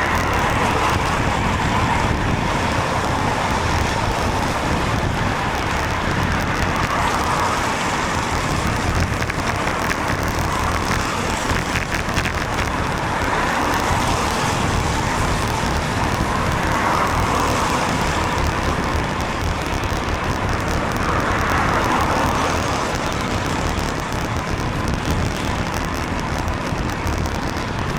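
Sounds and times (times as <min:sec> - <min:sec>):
cars passing: 0:00.0 - 0:27.9
tyres hissing on wet road: 0:00.0 - 0:27.9
wind rumble on microphone: 0:00.0 - 0:27.9.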